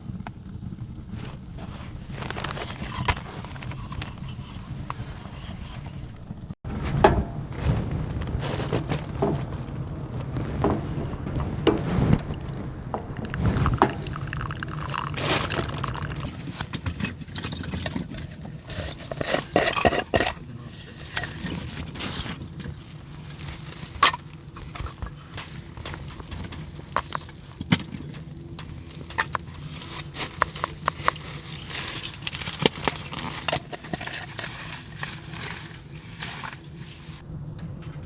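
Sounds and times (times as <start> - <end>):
wood stove fire crackling: 0.0 - 17.9, 20.4 - 38.0
low rumble: 4.3 - 16.4, 37.2 - 38.0
sharp pops and clicks: 9.1 - 16.3, 24.8 - 31.3.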